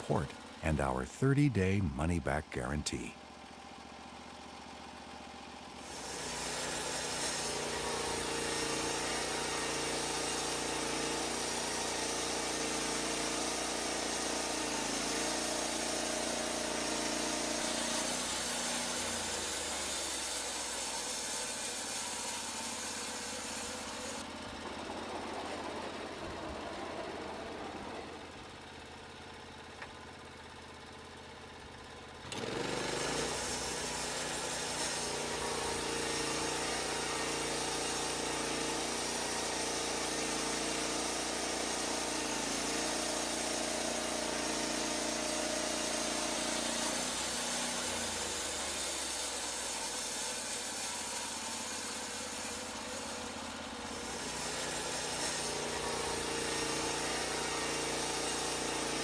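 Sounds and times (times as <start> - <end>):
small engine running: 3.2 - 59.0
band saw blade cutting log: 5.8 - 24.3, 32.3 - 59.0.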